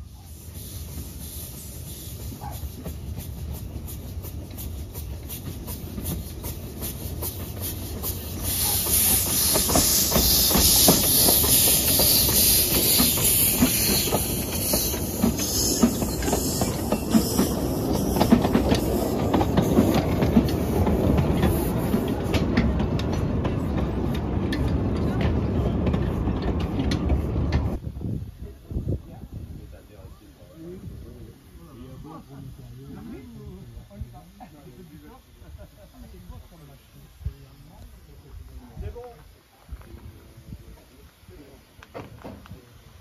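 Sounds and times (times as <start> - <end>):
hiss: 0.0 - 22.7
train running: 0.0 - 28.0.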